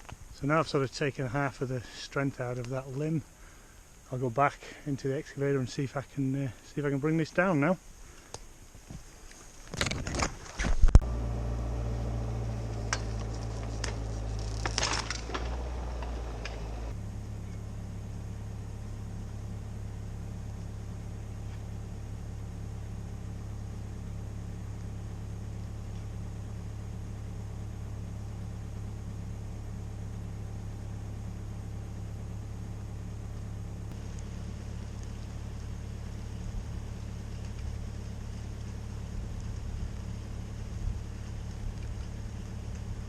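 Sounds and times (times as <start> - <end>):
diesel engine droning: 11.0 - 43.0.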